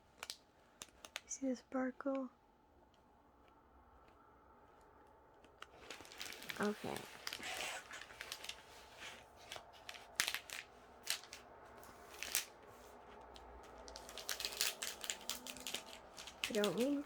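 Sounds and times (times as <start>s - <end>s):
plastic sheets crinkling: 0.0s - 1.4s, 5.2s - 17.0s.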